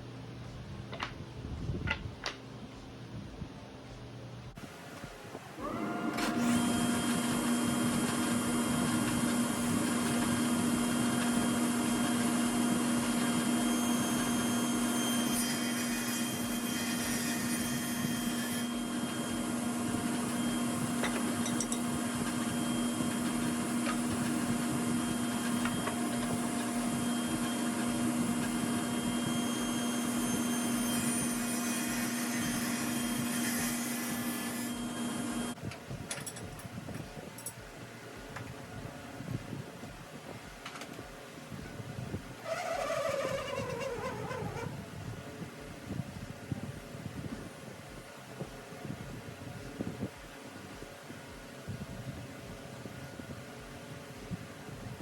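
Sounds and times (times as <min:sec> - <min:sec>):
power tool motor whine: 0:05.6 - 0:35.6, 0:42.4 - 0:44.8.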